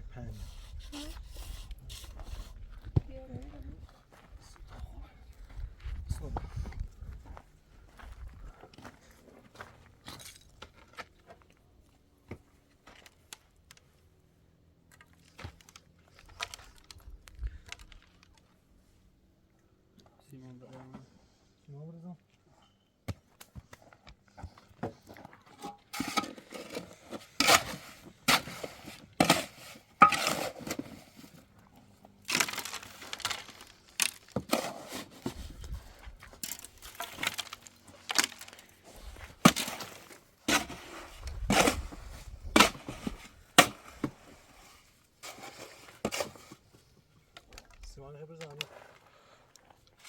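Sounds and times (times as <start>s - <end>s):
trowel scraping wet mortar: 25.5s - 31.4s, 32.3s - 35.8s, 36.4s - 46.6s.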